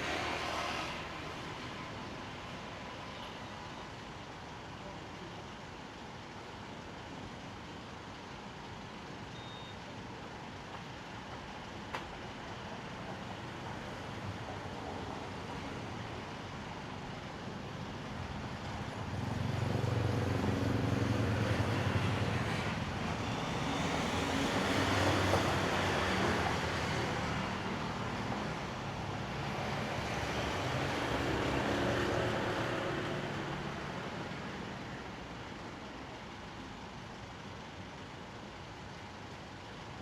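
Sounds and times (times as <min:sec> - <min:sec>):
vehicles passing: 0:13.8 - 0:35.9.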